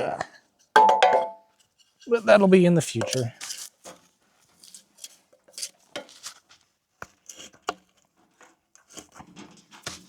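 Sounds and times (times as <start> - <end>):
wood and metal knocks and clinks: 0.8 - 1.6.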